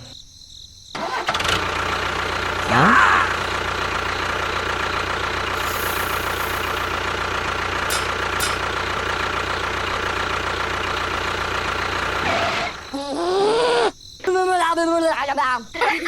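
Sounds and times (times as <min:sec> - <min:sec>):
motor running steadily: 0:02.2 - 0:12.2
brief high hiss: 0:05.6 - 0:07.0.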